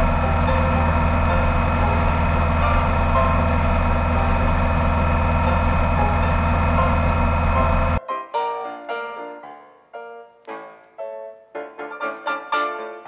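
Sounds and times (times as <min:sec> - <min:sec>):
motorcycle engine cruising: 0:00.0 - 0:08.0.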